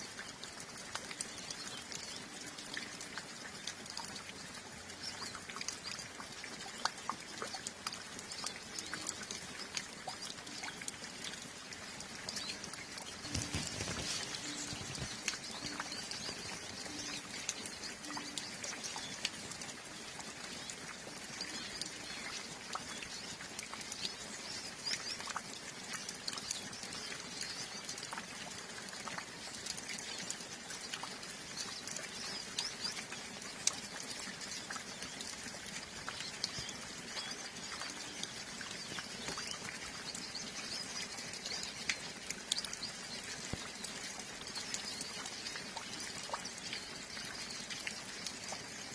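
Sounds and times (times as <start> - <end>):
light rain pattering: 0.0 - 48.9
birds twittering: 12.2 - 23.4.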